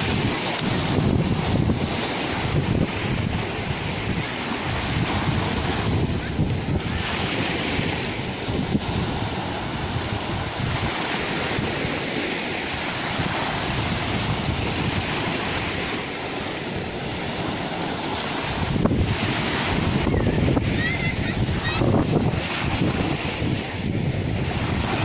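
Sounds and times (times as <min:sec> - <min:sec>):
sea waves washing ashore: 0:00.0 - 0:25.0.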